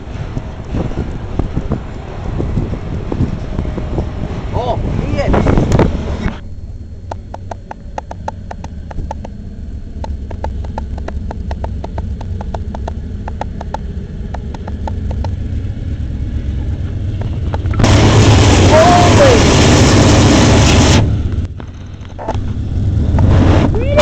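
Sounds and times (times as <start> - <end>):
freight train cars rumbling: 0.0 - 24.0
wheels clicking: 10.0 - 15.5.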